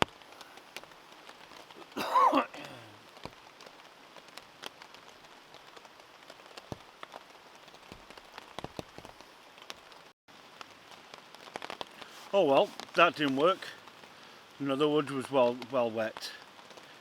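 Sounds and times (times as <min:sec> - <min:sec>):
rain falling: 0:00.0 - 0:17.0
raindrops tapping close by: 0:00.0 - 0:17.0.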